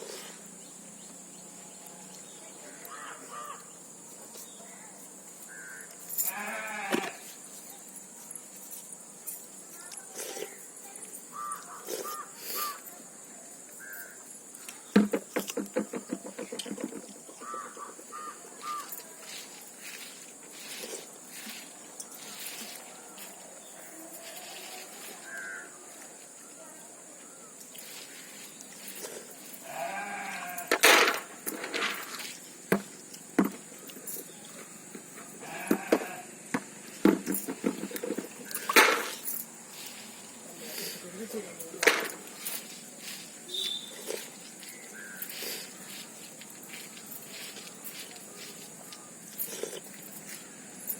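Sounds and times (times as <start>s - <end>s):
birds chirping: 0.0s - 30.6s, 36.9s - 50.9s
farm animal bleating: 5.6s - 7.3s, 29.6s - 30.7s, 35.4s - 36.3s.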